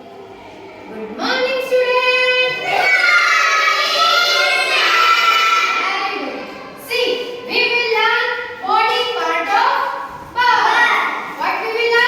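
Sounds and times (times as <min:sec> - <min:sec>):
children chanting in unison: 0:02.6 - 0:06.4.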